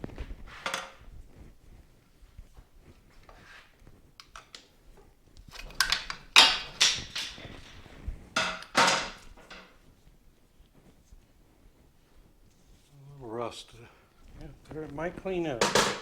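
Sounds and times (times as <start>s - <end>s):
metal knocks and clanks: 15.6s - 16.0s.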